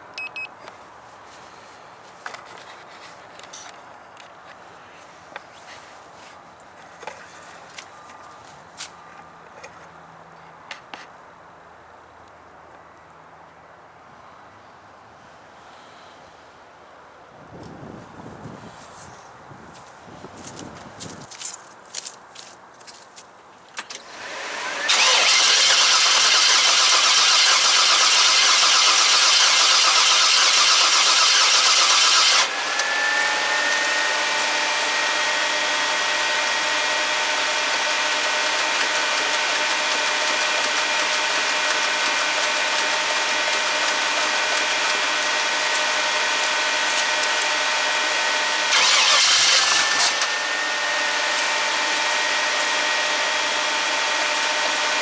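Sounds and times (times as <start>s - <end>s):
v-eight engine starting and running: 23.9s - 55.0s
engine whine: 24.0s - 55.0s.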